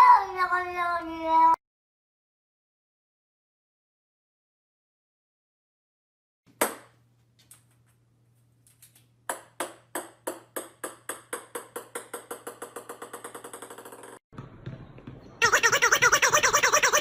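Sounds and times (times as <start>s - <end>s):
ball bouncing on wooden floor: 9.3s - 16.1s.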